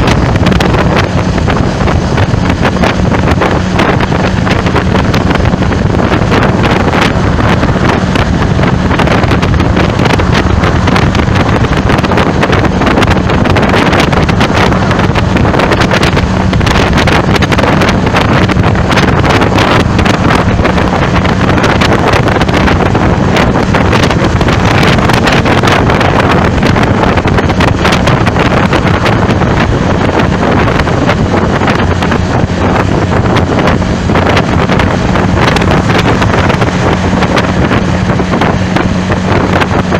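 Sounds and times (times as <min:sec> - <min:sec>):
low hum: 0:00.0 - 0:39.9
wind buffeting microphone: 0:00.0 - 0:39.9.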